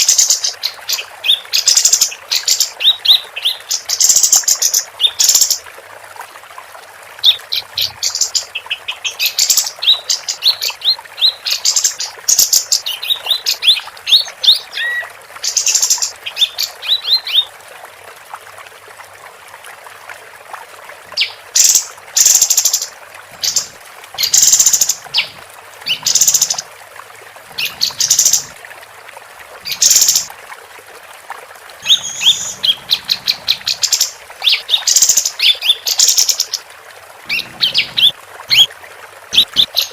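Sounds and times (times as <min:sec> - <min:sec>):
songbird chirping and trilling: 0:07.2 - 0:17.5, 0:27.6 - 0:28.5, 0:31.8 - 0:36.6, 0:37.3 - 0:38.7
harsh hissy bird calls: 0:21.2 - 0:25.3, 0:25.9 - 0:26.6, 0:31.8 - 0:36.6.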